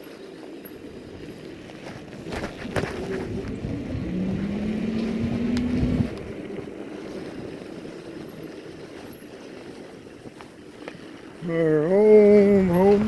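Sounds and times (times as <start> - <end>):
wind: 0.0 - 13.0
tyre rumble: 1.2 - 7.9, 11.4 - 13.0
electric bike motor whining: 2.0 - 9.4.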